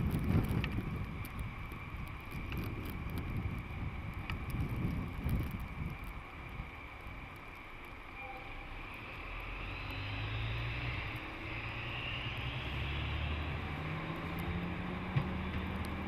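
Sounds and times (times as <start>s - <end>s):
train traction motors humming: 5.8s - 16.0s
train running rumble: 12.8s - 16.0s.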